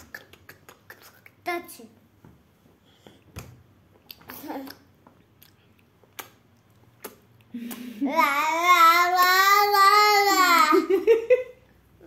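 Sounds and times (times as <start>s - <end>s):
child's vocal sound: 7.9s - 10.9s.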